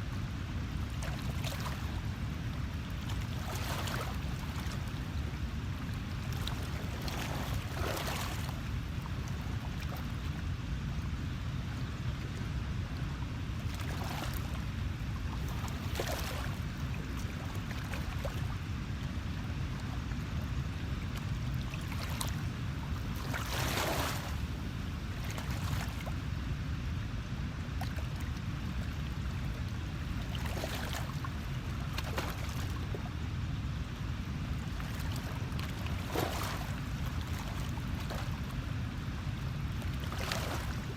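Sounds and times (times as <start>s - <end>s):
wind: 0.0s - 40.9s
water splashing: 6.2s - 8.8s, 15.4s - 16.7s, 23.1s - 24.5s, 34.8s - 38.4s, 40.0s - 40.8s.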